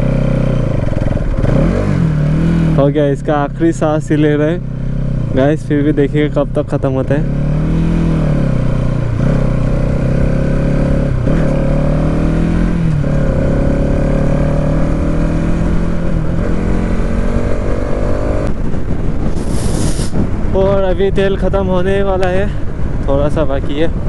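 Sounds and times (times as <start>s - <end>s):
motorcycle engine running: 0.0s - 24.0s
wind noise: 7.6s - 24.0s.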